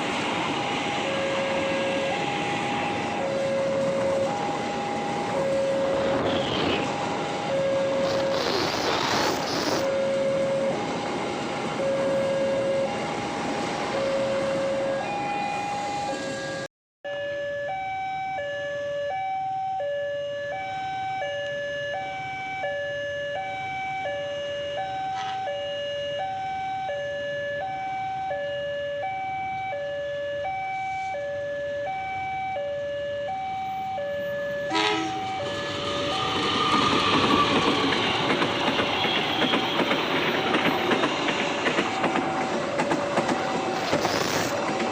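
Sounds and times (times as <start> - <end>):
train rumble: 0.0 - 16.7, 34.7 - 44.9
two-tone level crossing alarm: 0.5 - 8.2, 9.9 - 41.1.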